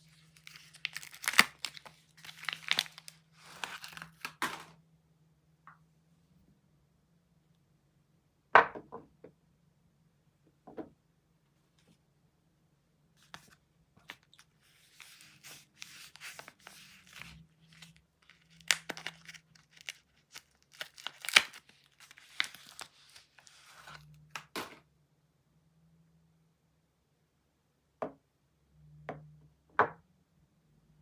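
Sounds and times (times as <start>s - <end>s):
wrapping being torn and crinkled: 0.1s - 4.7s, 14.1s - 24.6s.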